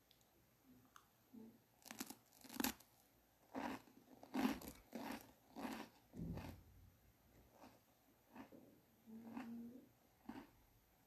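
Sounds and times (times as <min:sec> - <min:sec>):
person chewing crunchy food: 0:01.8 - 0:02.9, 0:03.5 - 0:06.6, 0:07.5 - 0:10.6.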